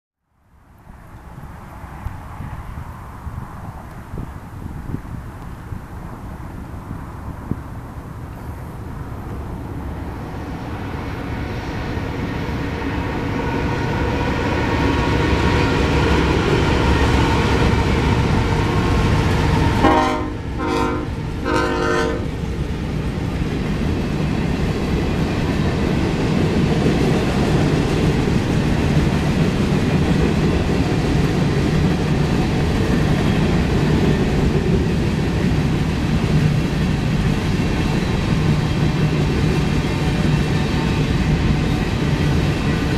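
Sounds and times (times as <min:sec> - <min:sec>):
freight train rumbling: 0:00.6 - 0:42.9
locomotive air horn blasts: 0:19.5 - 0:22.3.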